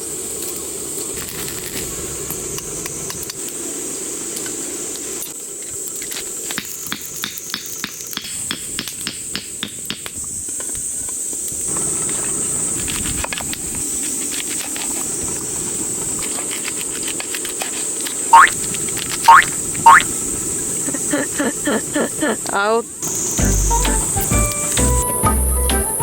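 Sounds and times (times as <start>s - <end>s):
pork belly sizzling on a grill: 0.0s - 8.2s, 23.0s - 26.0s.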